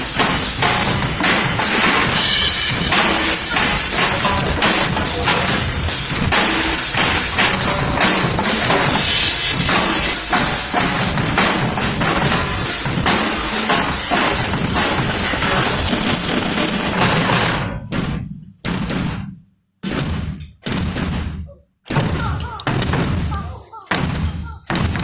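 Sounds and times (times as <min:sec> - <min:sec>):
music with drum beat: 0:00.0 - 0:19.2.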